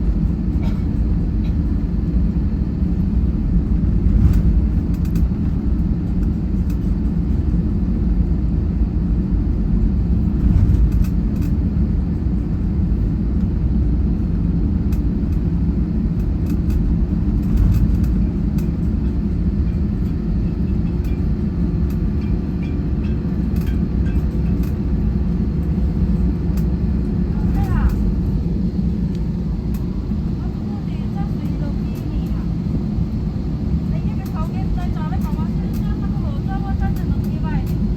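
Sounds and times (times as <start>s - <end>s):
jet engine cabin rumble: 0.0s - 37.9s
light clicks and rattles: 4.0s - 7.4s, 10.4s - 11.6s, 16.2s - 28.3s, 30.6s - 37.9s.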